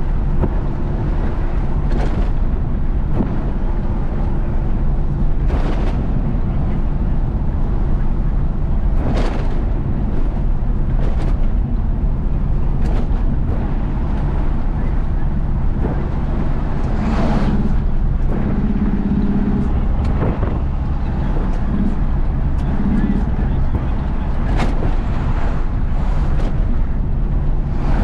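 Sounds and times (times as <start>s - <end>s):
diesel truck engine drone: 0.0s - 28.0s
knocks and rattles: 8.8s - 12.0s, 12.7s - 27.4s.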